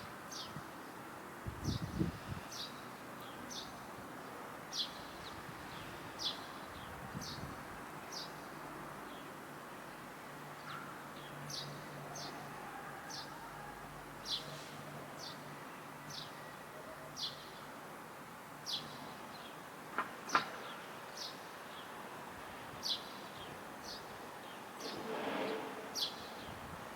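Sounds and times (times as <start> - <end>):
sparrows chirping: 0.3 - 1.0, 1.6 - 9.3, 10.6 - 12.4, 16.0 - 16.5, 17.2 - 17.7, 18.6 - 19.6, 20.3 - 22.1, 22.8 - 26.8.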